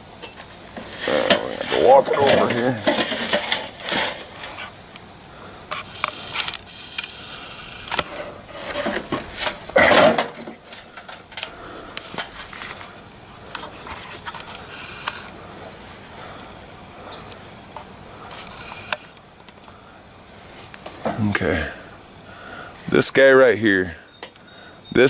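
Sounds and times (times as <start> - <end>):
loud rasp: 0.8 - 4.8.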